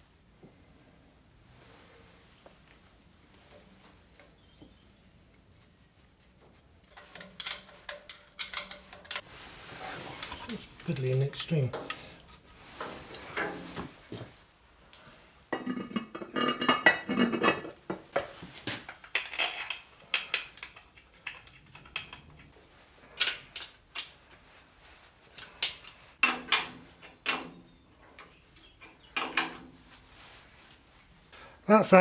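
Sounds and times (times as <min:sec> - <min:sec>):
metal tools and pipe fittings clinking: 0:06.8 - 0:12.4, 0:18.9 - 0:24.4, 0:25.2 - 0:27.6.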